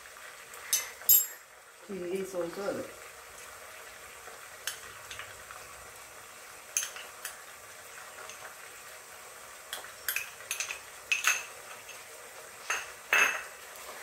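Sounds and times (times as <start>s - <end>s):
chicken frying in oil: 0.0s - 14.0s
metal spoon clinking glass bowl: 10.1s - 11.5s.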